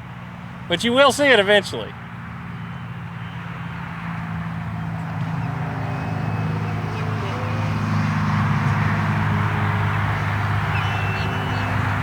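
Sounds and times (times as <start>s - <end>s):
model plane motor humming: 4.6s - 12.0s.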